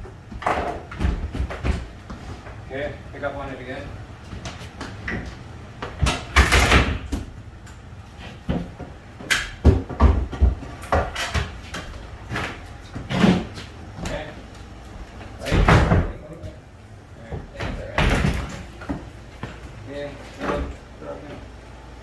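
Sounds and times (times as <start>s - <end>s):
knocks and heavy thumps: 9.6s - 14.2s.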